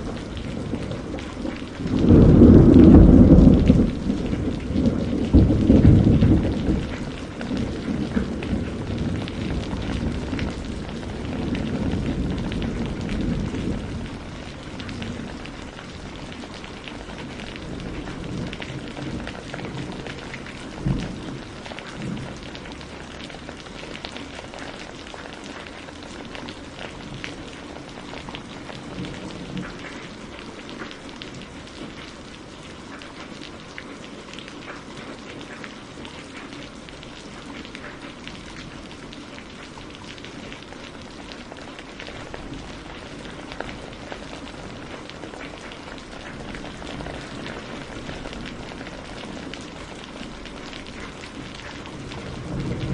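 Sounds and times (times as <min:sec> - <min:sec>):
thunder rumble: 0:00.0 - 0:24.7, 0:39.7 - 0:52.9
steady rain falling: 0:00.0 - 0:52.9.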